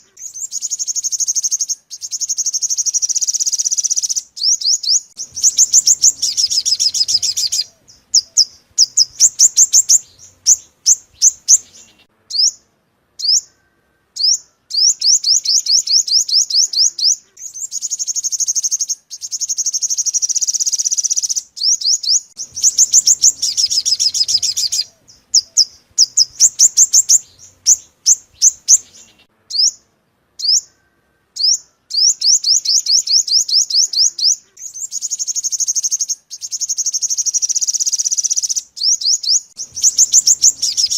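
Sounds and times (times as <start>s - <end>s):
songbird trilling and chirping: 0.0s - 40.9s.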